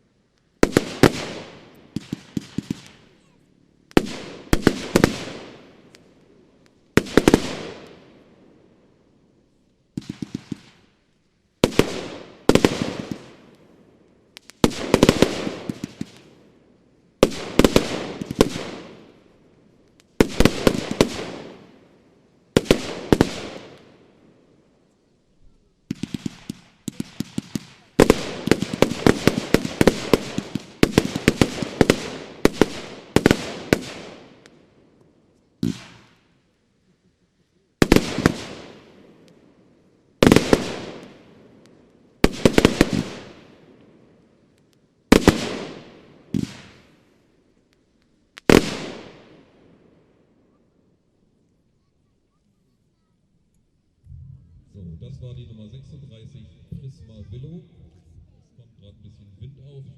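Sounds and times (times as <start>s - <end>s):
firework bangs echoing: 0.6s - 6.1s, 6.9s - 8.2s, 9.9s - 11.0s, 11.6s - 13.6s, 14.4s - 16.3s, 17.2s - 19.3s, 20.2s - 21.8s, 22.6s - 24.1s, 25.9s - 34.7s, 35.6s - 36.4s, 37.8s - 39.3s, 40.2s - 41.6s, 42.2s - 44.0s, 45.1s - 47.0s, 48.4s - 49.6s.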